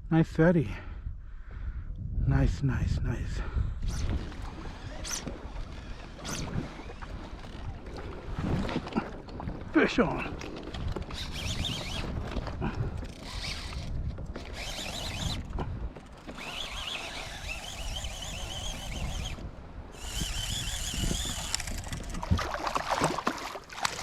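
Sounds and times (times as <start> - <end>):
low wind: 0.0 - 24.0
water rumble: 3.8 - 24.0
fishing reel ratcheting: 10.7 - 12.3, 13.0 - 22.4.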